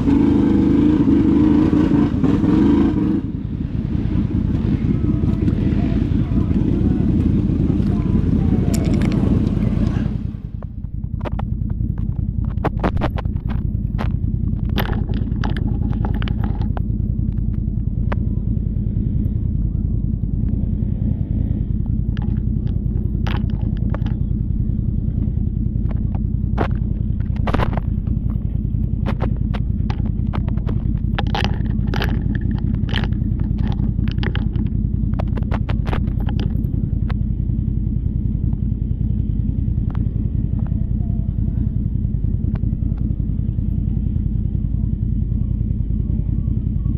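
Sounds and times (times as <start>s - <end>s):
atv engine running: 0.0s - 46.9s
sharp knocks and clicks: 6.6s - 18.3s, 21.8s - 44.5s.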